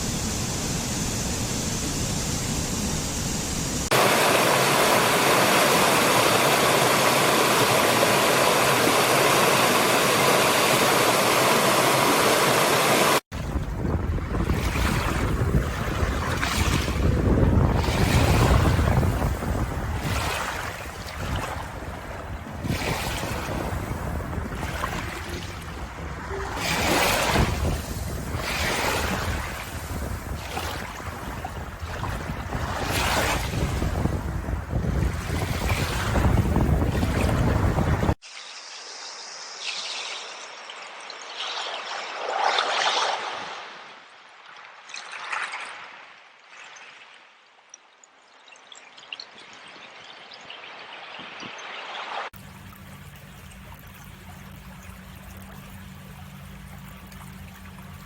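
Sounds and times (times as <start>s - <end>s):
ocean waves washing in: 0.0s - 47.4s
wind and surf noise: 0.0s - 47.4s
water trickling in a stream: 15.1s - 32.9s, 38.1s - 42.0s, 44.2s - 58.0s.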